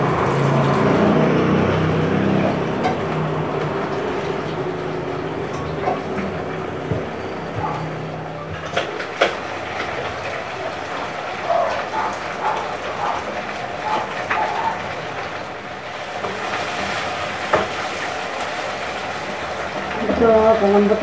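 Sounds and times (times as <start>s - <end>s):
meat sizzling in a pan: 10.4s - 21.0s.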